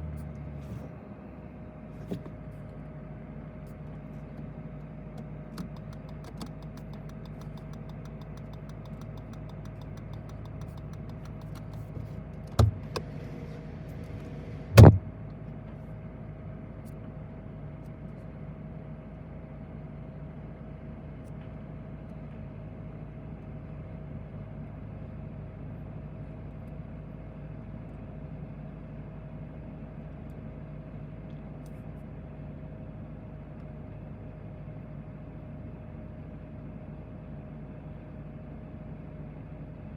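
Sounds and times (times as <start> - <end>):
car interior hum: 3.9 - 15.5
sharp clicks: 5.2 - 11.9.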